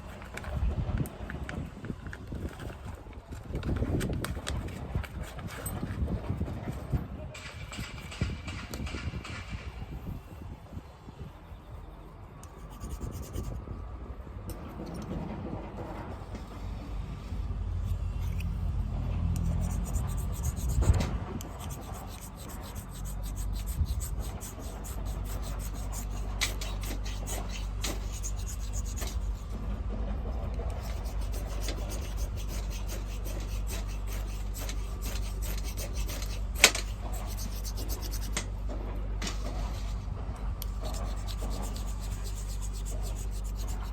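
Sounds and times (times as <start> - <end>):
steady low rumble: 12.6 - 43.9
fire starter scraping: 19.4 - 29.6, 30.8 - 38.5.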